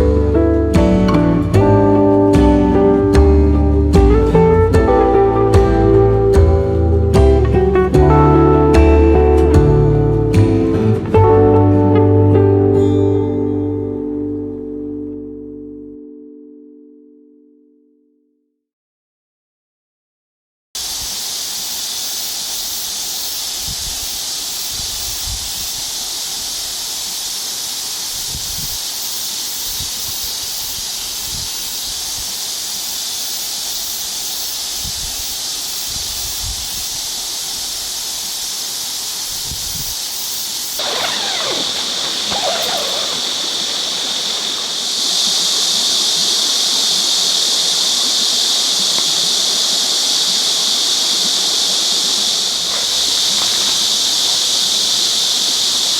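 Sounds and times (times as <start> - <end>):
high-pitched outdoor hiss: 0.0 - 12.0, 20.8 - 55.9.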